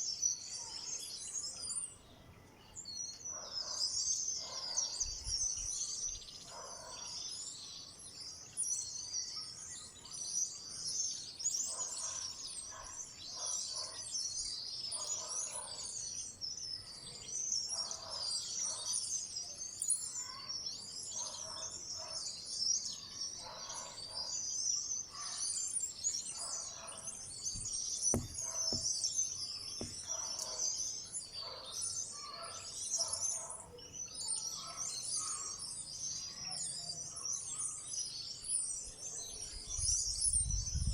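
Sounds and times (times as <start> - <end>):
small birds chirping: 0.0 - 40.9
short knock: 27.6 - 29.0, 29.8 - 30.2.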